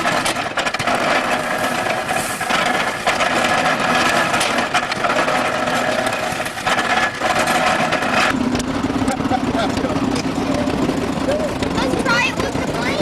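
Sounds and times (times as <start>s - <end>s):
hay baler clattering: 0.0s - 13.0s
tractor engine running: 0.0s - 13.0s.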